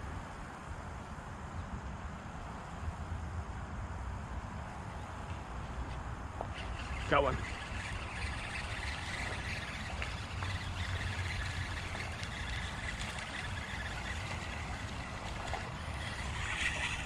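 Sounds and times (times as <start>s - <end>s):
creek water running: 4.7s - 17.0s.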